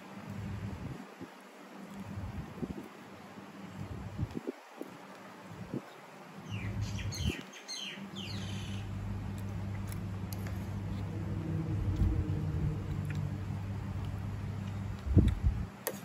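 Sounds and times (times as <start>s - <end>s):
low mechanical hum: 0.0s - 16.0s
small bird chirping: 6.4s - 8.9s.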